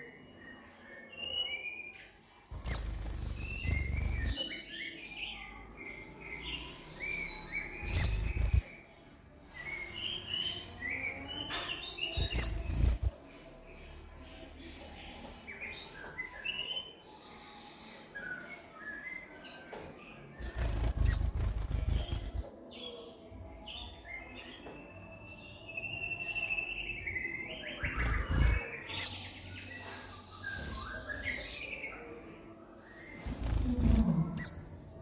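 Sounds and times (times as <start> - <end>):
bird twittering chirps: 2.5 - 4.9, 6.3 - 8.6, 12.1 - 13.1, 20.4 - 22.4, 26.7 - 29.5, 33.1 - 35.0.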